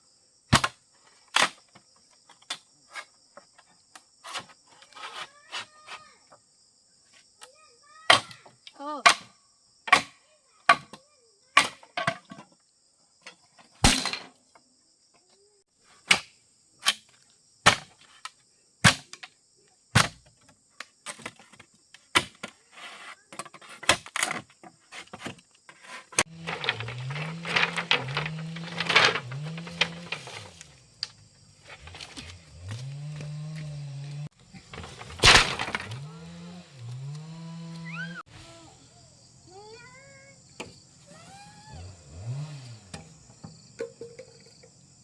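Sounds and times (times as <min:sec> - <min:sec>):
hand tool striking wood: 0:25.9 - 0:30.7, 0:31.7 - 0:37.9.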